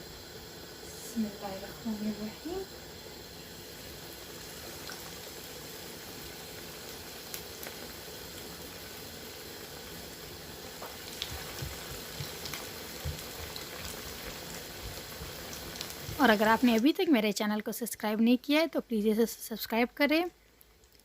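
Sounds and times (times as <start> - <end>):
meat frying in hot oil: 0.0 - 21.0
oil popping and spitting: 10.8 - 16.2.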